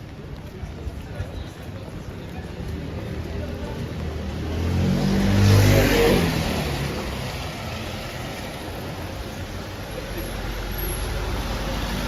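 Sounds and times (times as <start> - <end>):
motor vehicle passing by: 3.8 - 9.4.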